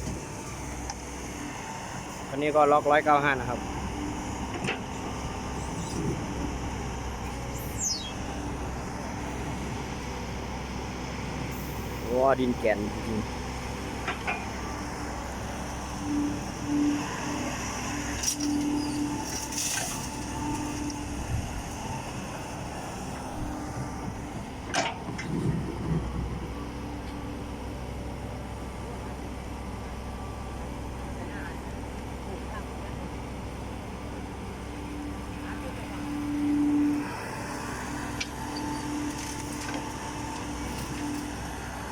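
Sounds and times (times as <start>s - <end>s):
diesel machinery engine drone: 0.0s - 41.9s
short high falling chirp: 7.7s - 8.2s.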